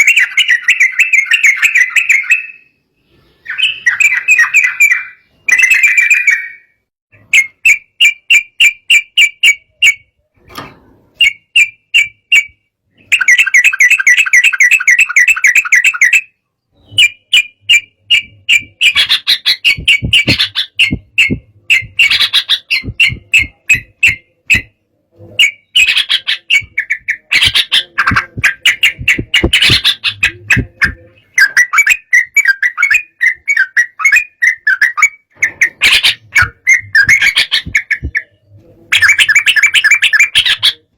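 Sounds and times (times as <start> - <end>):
bulbul singing chattering notes: 11.2 - 24.8, 25.4 - 40.9.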